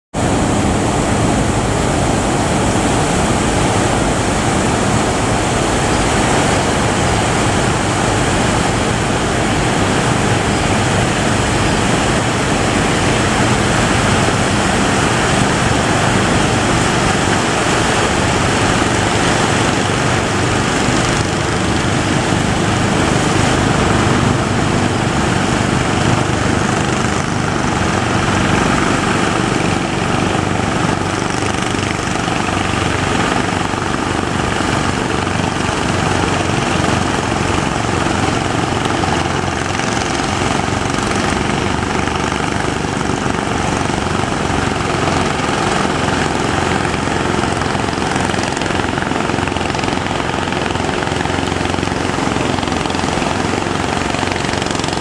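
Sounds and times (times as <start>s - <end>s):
breaking waves: 0.2s - 55.0s.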